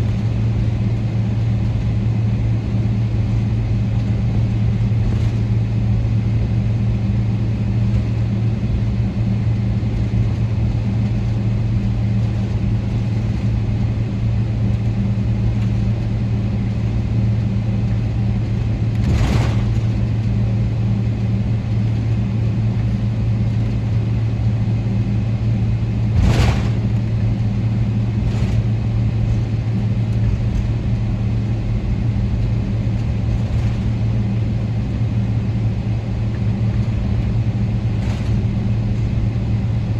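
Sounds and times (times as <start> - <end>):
aircraft cabin hum: 0.0 - 39.9
rushing air noise: 26.0 - 28.7.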